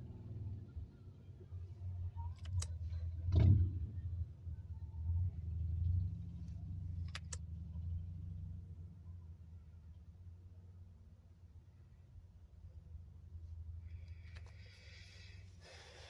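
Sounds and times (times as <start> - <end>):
car interior low rumble: 0.0 - 16.0
sharp clicks: 2.3 - 2.8, 7.0 - 7.4.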